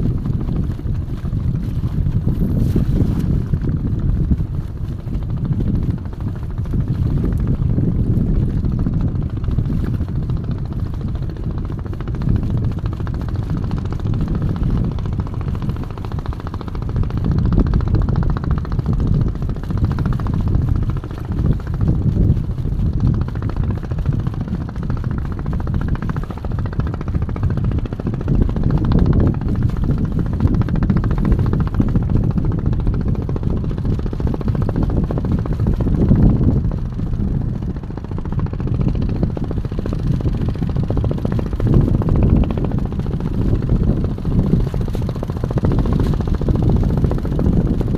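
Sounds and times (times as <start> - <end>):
gusty wind buffeting microphone: 0.0 - 47.9.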